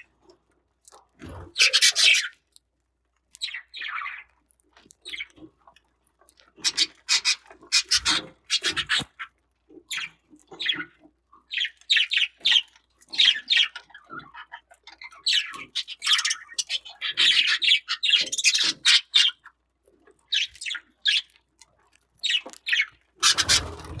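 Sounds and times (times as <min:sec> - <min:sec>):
budgerigars chirping and chattering: 0:01.6 - 0:02.3, 0:06.6 - 0:09.1, 0:09.9 - 0:10.9, 0:11.5 - 0:19.4, 0:22.2 - 0:24.0.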